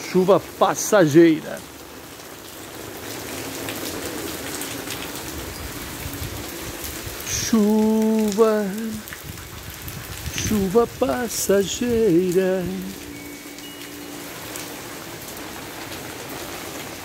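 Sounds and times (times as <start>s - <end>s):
rain on a tiled patio: 0.0s - 17.0s
held pitched tone: 13.0s - 14.6s.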